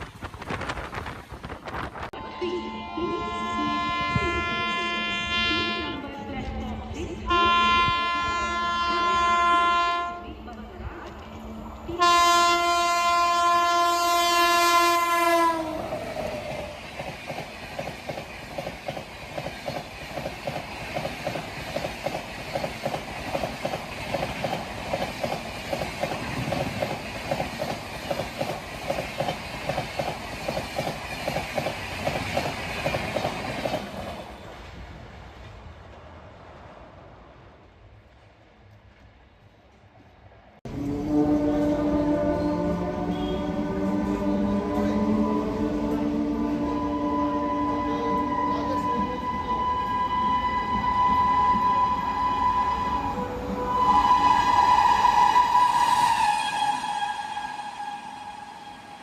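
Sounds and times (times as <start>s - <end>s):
train horn blasts: 2.2s - 6.0s, 7.3s - 10.4s, 12.0s - 16.0s, 40.7s - 59.0s
train wheels clickety-clack: 15.8s - 34.8s.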